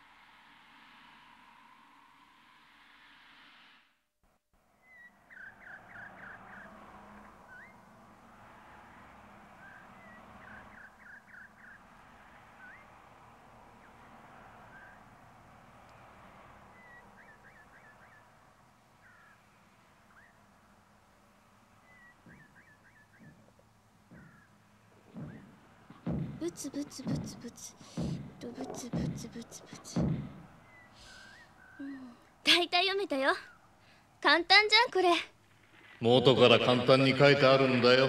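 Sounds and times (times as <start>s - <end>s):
outdoor ambience hiss: 0.0s - 38.0s
bird chirping trills: 4.7s - 36.7s
rising bird whistle: 7.5s - 7.8s, 12.6s - 12.9s, 16.7s - 18.3s, 21.8s - 23.5s, 30.6s - 31.8s.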